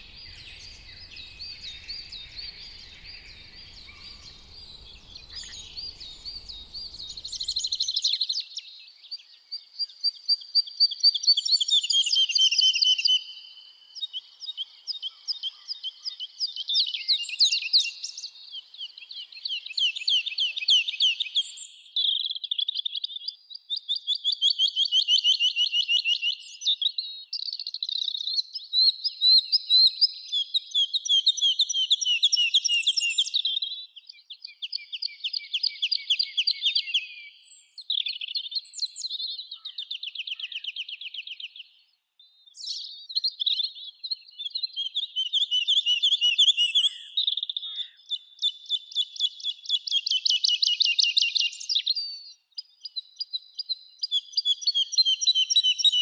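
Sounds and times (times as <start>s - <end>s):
songbirds trilling: 0.0s - 8.1s.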